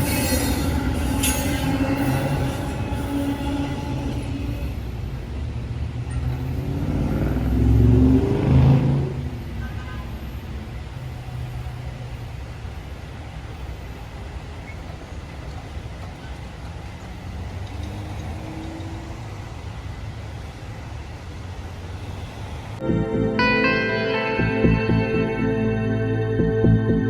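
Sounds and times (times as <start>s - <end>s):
traffic noise: 0.0s - 27.0s
vehicle accelerating past: 6.3s - 9.4s.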